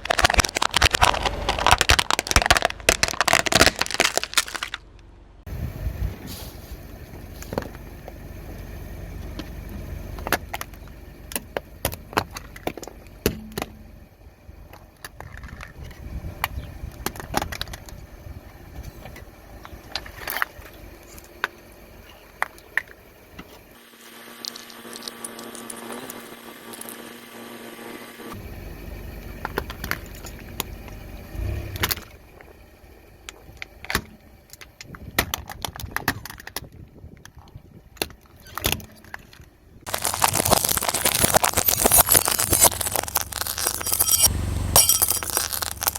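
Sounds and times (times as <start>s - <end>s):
tyre crushing brittle objects: 0.0s - 5.0s, 38.2s - 45.9s
car low rumble: 0.0s - 45.9s.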